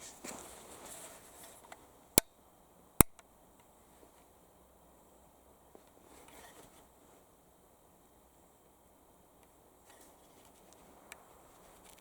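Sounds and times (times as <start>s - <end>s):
faint handling rustle: 0.0s - 2.0s, 3.6s - 4.5s, 5.6s - 7.4s, 9.8s - 12.0s.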